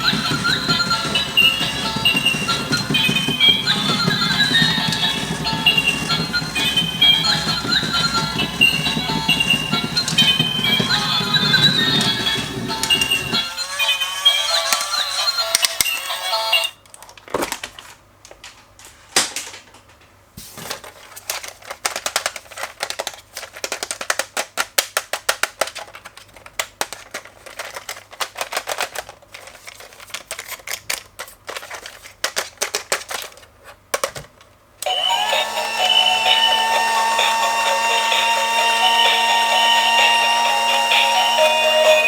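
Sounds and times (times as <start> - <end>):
loud clacks: 0.0 - 13.5
rapid irregular clicking: 0.0 - 13.6
music: 0.0 - 16.8, 34.9 - 42.0.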